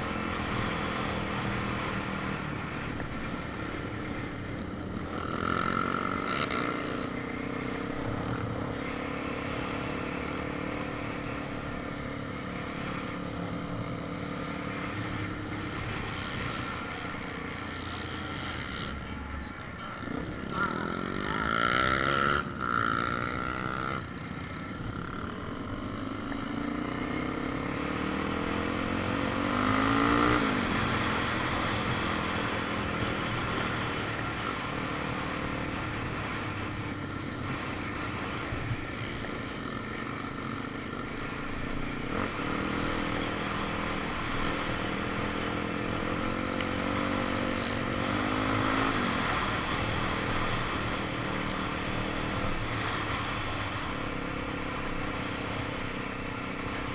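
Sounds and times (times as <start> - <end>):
vehicle engine revving: 0.0 - 24.2, 24.8 - 36.9.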